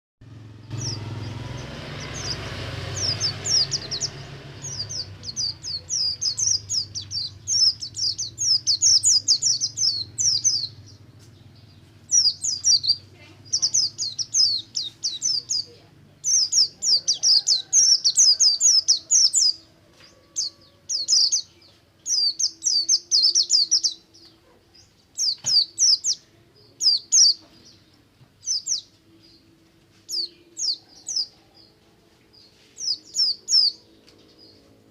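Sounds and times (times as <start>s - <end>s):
low rumble: 0.2s - 15.4s
bird singing rapid twitters: 0.2s - 34.9s.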